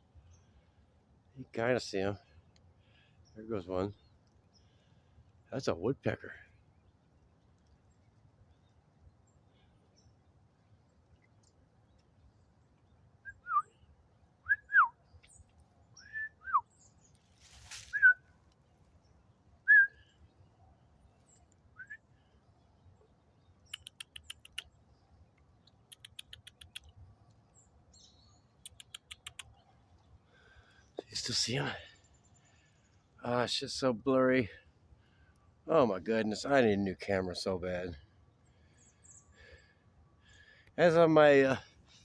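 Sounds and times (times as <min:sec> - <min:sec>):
birds whistling downward notes: 0:16.0 - 0:16.9.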